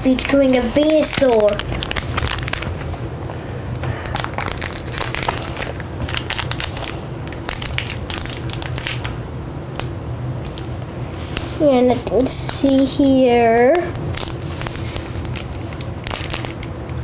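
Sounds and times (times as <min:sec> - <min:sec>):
foil wrapper crinkling and tearing: 0:00.0 - 0:03.1, 0:03.9 - 0:09.2, 0:12.2 - 0:17.0.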